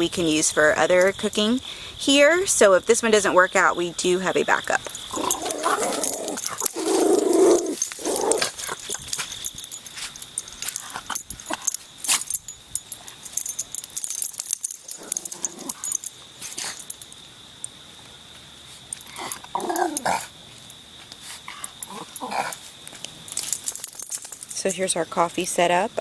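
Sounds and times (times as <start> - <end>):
small dogs growling: 5.1 - 8.8, 19.1 - 20.3, 21.5 - 22.6.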